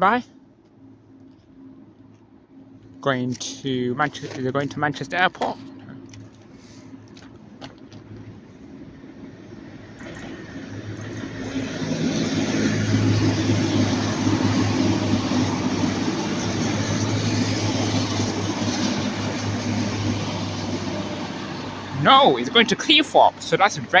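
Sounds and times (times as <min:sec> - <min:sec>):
diesel train engine drone: 0:00.0 - 0:24.0
wheel and rail noise: 0:00.0 - 0:24.0.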